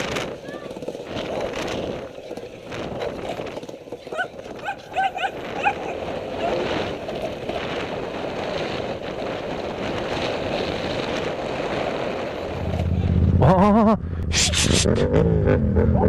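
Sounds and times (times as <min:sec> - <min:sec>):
steady rushing noise: 0:00.0 - 0:16.0
dog barking: 0:04.1 - 0:06.6.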